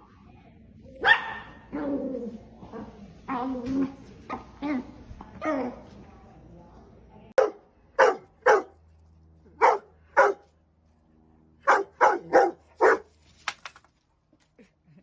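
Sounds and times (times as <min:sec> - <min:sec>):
dog barking: 0:01.0 - 0:01.8, 0:07.4 - 0:08.8, 0:09.6 - 0:10.5, 0:11.6 - 0:13.1.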